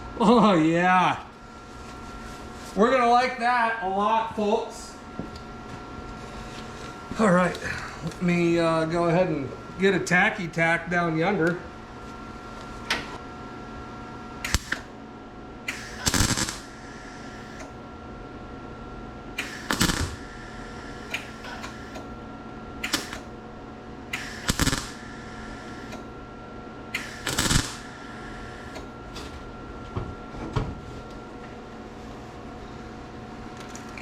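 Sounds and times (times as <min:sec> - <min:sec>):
background hum: 0:00.0 - 0:34.0
tack welding bursts: 0:14.4 - 0:15.0, 0:15.7 - 0:17.8, 0:19.3 - 0:22.2, 0:22.8 - 0:23.4, 0:24.0 - 0:26.1, 0:26.9 - 0:29.0.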